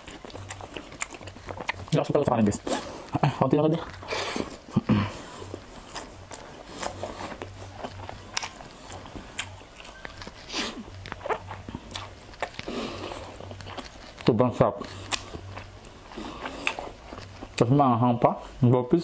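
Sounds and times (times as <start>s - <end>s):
chewing and mouth sounds: 0.0s - 17.7s
faint low hum: 0.0s - 19.0s.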